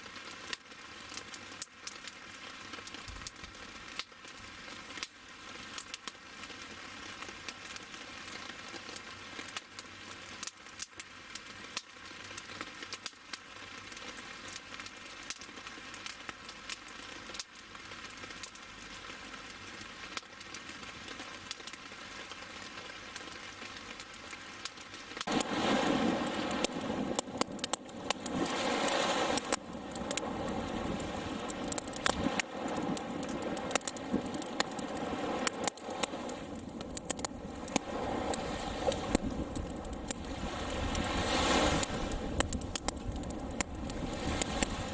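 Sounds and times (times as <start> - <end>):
wood fire crackling and popping: 0.1 - 44.9
loud rushing noise: 25.3 - 27.5.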